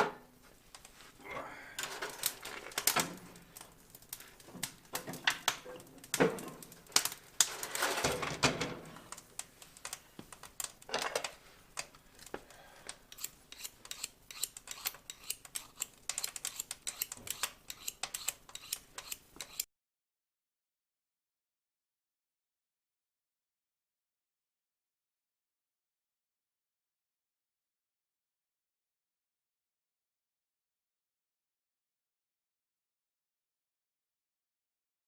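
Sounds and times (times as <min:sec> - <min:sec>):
kindling fire crackling: 0:00.4 - 0:19.6.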